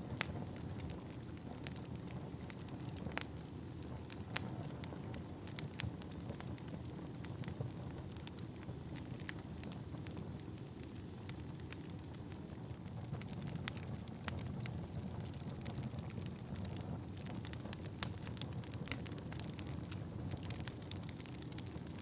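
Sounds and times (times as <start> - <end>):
fire rumbling: 0.0 - 22.0
logs crackling and popping: 0.1 - 22.0
faint high whistle: 7.0 - 12.6.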